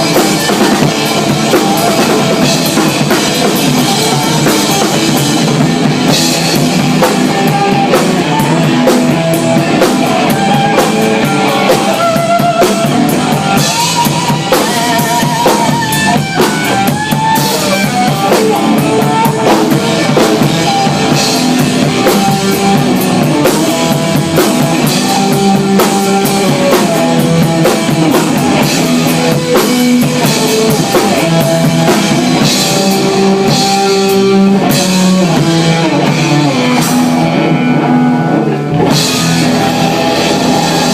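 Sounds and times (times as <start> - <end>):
rock band playing live: 0.0 - 40.9.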